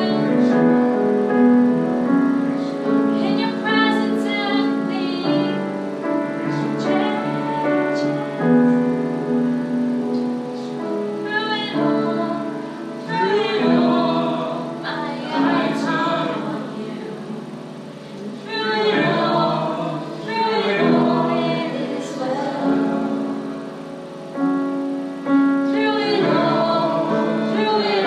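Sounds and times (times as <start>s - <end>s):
woman singing: 0.0s - 0.7s, 3.1s - 9.0s, 10.7s - 23.4s, 25.6s - 28.0s
keyboard accompaniment: 0.0s - 28.0s.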